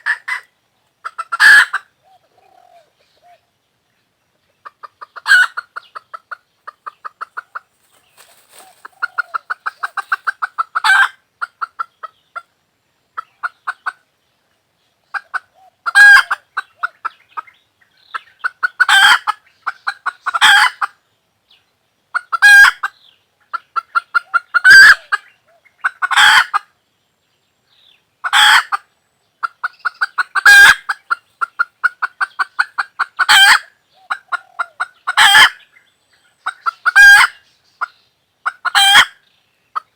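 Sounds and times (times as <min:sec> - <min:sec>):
hen cackling: 0:00.0 - 0:03.4, 0:04.6 - 0:12.1, 0:15.1 - 0:17.2, 0:18.4 - 0:20.9, 0:22.2 - 0:22.9, 0:23.5 - 0:26.7, 0:28.2 - 0:28.8, 0:29.4 - 0:35.6, 0:36.4 - 0:39.2.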